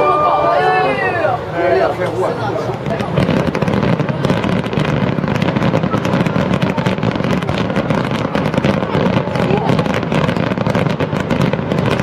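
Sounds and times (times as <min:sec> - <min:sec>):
fireworks bangs and pops: 0:02.0 - 0:12.0.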